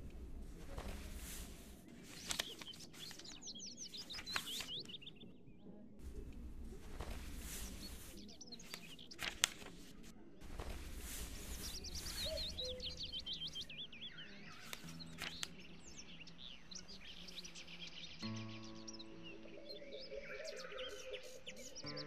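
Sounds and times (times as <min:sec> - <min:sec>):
rustling noise: 0:00.0 - 0:05.0, 0:06.0 - 0:13.8, 0:14.6 - 0:15.6
small birds chirping: 0:00.0 - 0:22.0
music: 0:14.8 - 0:16.7, 0:18.1 - 0:22.0.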